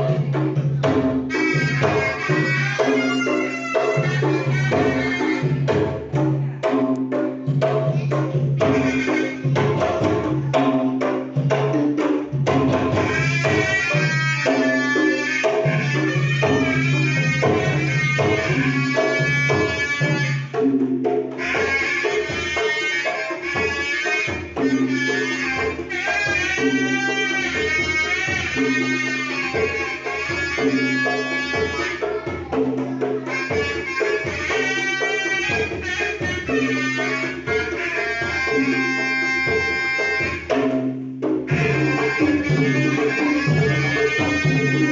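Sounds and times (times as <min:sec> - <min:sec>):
hand drum accompaniment: 0:00.0 - 0:44.9
reedy shawm melody: 0:01.1 - 0:07.2, 0:08.0 - 0:11.2, 0:21.3 - 0:40.6, 0:41.5 - 0:44.9.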